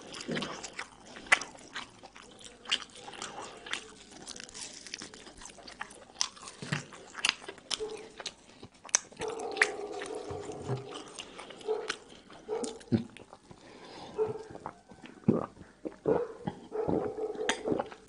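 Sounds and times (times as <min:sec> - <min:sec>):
crunchy chewing: 0:00.0 - 0:18.0
wet mouth clicks: 0:14.4 - 0:18.0.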